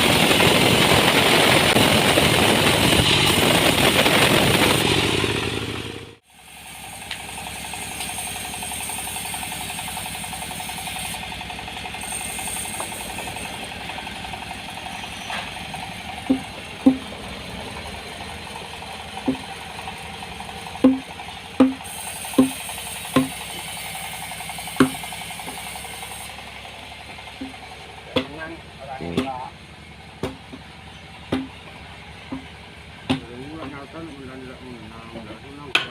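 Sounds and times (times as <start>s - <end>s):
machinery humming: 0.0s - 35.9s
sharp knocks: 16.2s - 17.1s, 19.2s - 19.5s, 20.8s - 21.8s, 22.4s - 23.4s, 24.8s - 25.0s, 30.2s - 30.6s, 31.3s - 31.6s, 32.3s - 33.3s.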